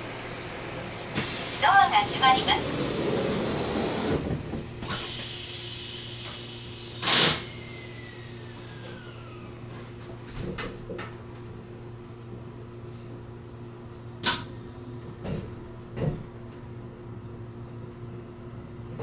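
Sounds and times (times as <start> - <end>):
electric train hum: 0.0 - 10.2.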